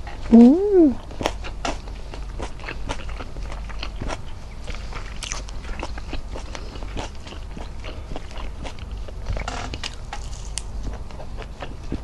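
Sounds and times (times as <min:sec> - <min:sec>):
chewing and lip smacks: 0:01.0 - 0:12.0
food being torn by hand: 0:09.8 - 0:10.7.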